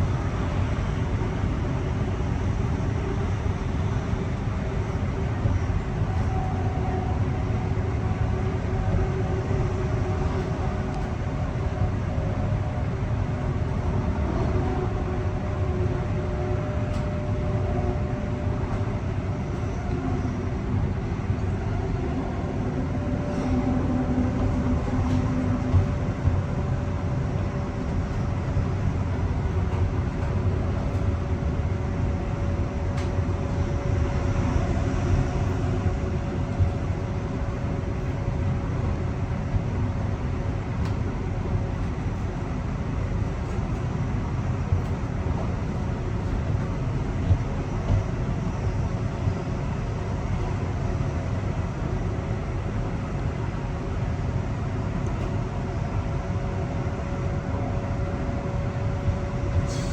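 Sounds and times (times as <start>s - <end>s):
train wheels rumbling on track: 0.0s - 59.9s.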